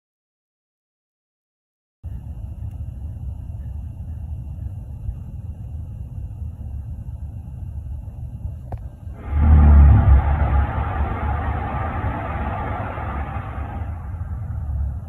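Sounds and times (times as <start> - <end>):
deep droning rumble: 9.2 - 15.0.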